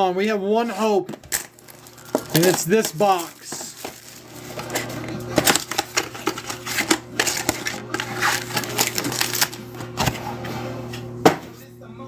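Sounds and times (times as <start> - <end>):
packaging torn and crinkling: 1.2 - 10.1.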